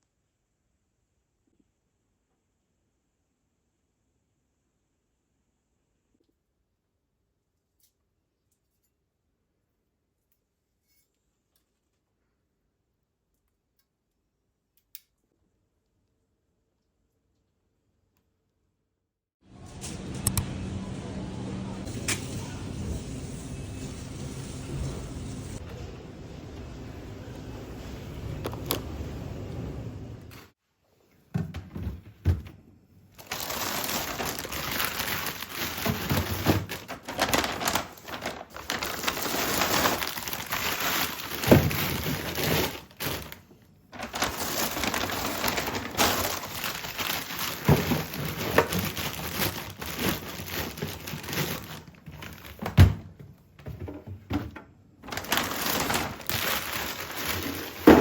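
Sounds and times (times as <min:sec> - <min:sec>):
crinkling and rustling: 0:33.2 - 0:58.0.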